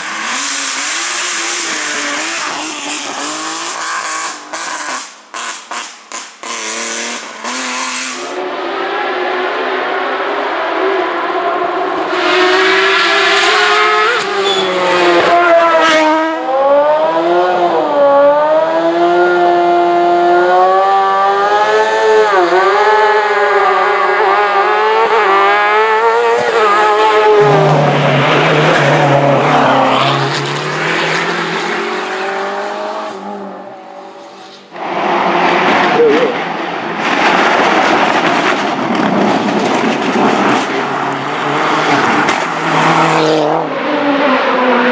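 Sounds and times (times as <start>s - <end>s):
race car engine revving: 0.0s - 44.9s
tire squeal: 10.3s - 16.1s.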